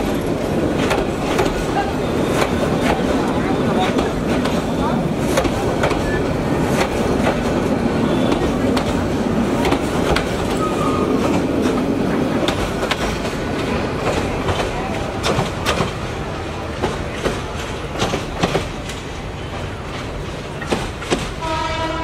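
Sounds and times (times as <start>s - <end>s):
train wheels clacking over rails: 0.0s - 22.0s.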